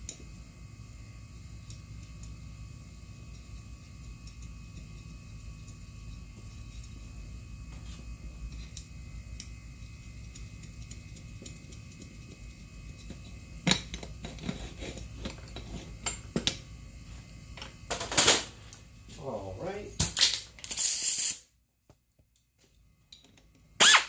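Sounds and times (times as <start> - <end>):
steady low hum: 0.0 - 20.6.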